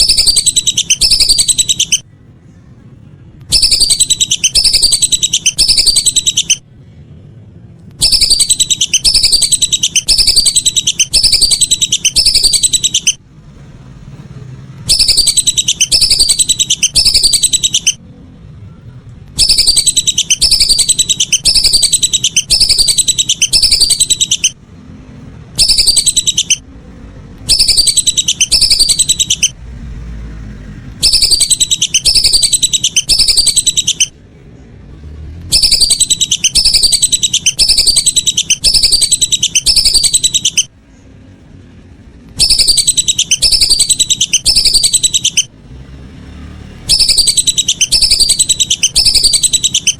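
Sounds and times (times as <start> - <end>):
whistling ducks calling: 0.0 - 2.0, 3.5 - 6.6, 8.0 - 13.2, 14.8 - 18.0, 19.4 - 24.6, 25.6 - 26.6, 27.4 - 29.6, 31.0 - 34.1, 35.5 - 40.7, 42.3 - 45.5, 46.9 - 49.9.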